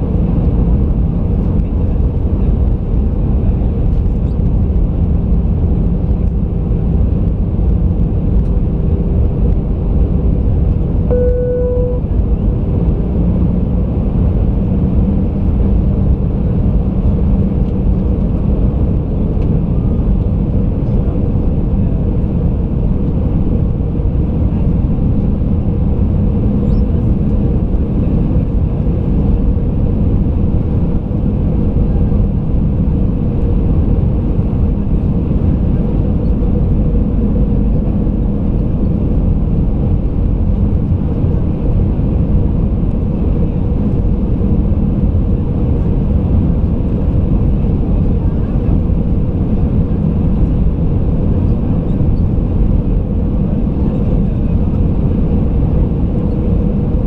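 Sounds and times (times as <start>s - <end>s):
airplane cabin engine rumble: 0.0s - 57.0s
faint constant hum: 9.0s - 14.7s.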